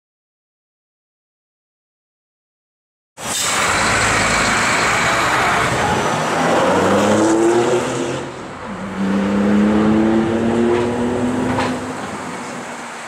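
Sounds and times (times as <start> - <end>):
sports car engine accelerating: 6.3 - 11.8.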